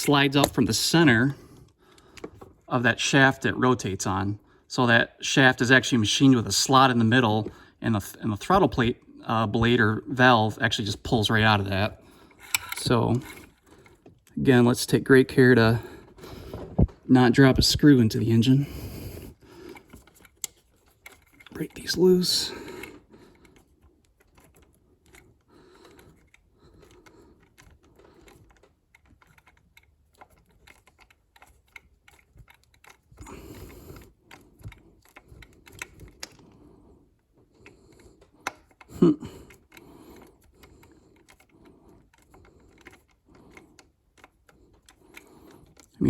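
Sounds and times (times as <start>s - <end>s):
metallic clicks of hand tool: 12.4s - 13.5s.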